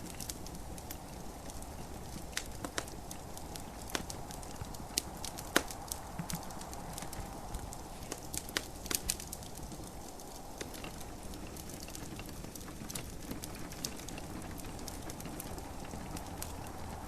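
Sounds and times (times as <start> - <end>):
gentle rain: 0.0 - 17.0
wood fire crackling: 0.0 - 17.0.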